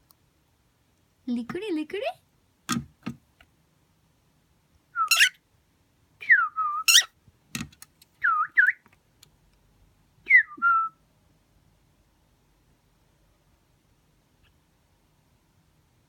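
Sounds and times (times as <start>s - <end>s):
cockatiel whistling: 5.0s - 5.4s, 6.2s - 7.1s, 8.2s - 8.8s, 10.3s - 10.9s
harsh bird chirps: 5.0s - 5.4s, 6.8s - 7.1s.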